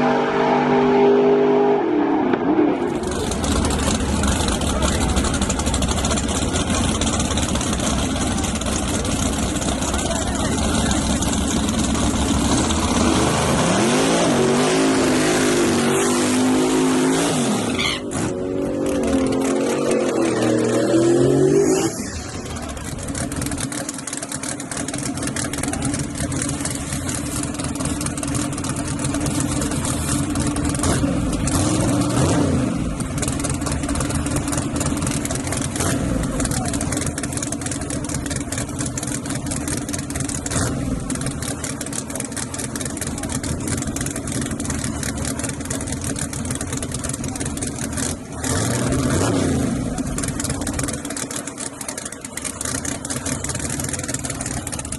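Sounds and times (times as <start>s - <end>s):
engine revving up and down: 0.0s - 5.1s, 12.4s - 22.9s, 30.7s - 33.1s, 40.4s - 41.4s, 47.3s - 51.0s
drag racing engines running: 0.0s - 54.9s.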